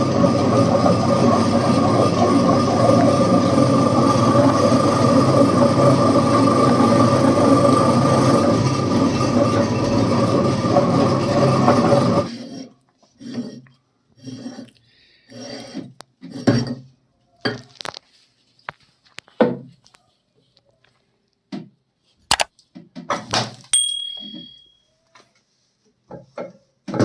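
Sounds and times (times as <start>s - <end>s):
dishes clinking and knocking: 23.8s - 24.8s
brief high ring: 23.8s - 24.9s.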